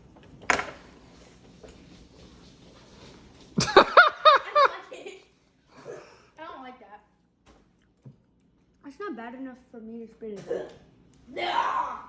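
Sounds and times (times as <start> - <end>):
person coughing: 10.4 - 10.8
child's pitched vocal noises: 10.6 - 12.0.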